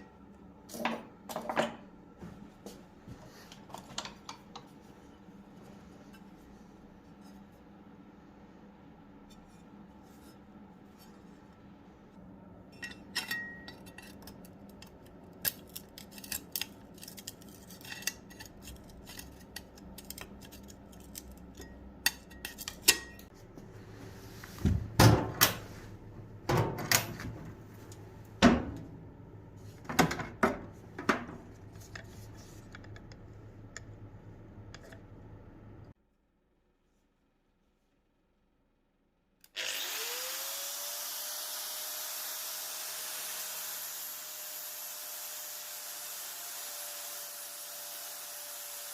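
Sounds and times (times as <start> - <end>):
metal tools clinking: 12.8 - 14.2.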